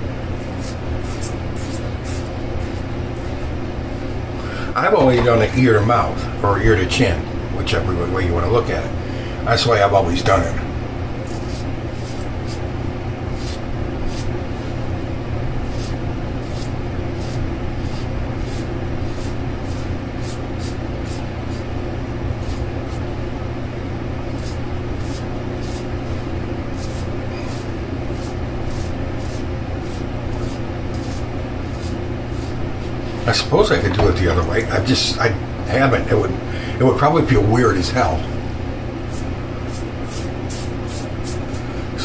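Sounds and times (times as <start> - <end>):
electric fan humming: 0.0 - 42.0
razor scraping stubble: 0.4 - 4.1, 11.2 - 12.7, 13.3 - 14.9, 15.6 - 23.1, 24.3 - 33.3, 39.0 - 41.8.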